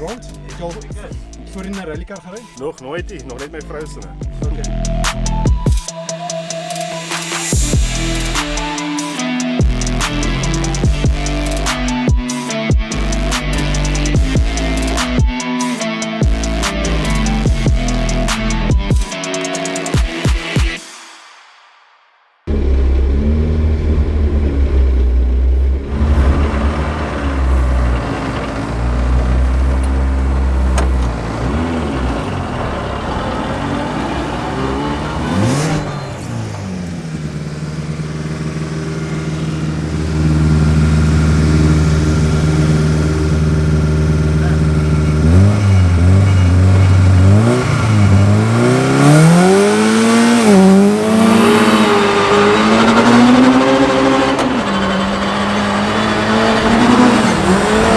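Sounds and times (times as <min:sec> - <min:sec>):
rally car engine revving: 0:06.6 - 0:15.6, 0:16.3 - 0:18.9, 0:22.5 - 0:57.9.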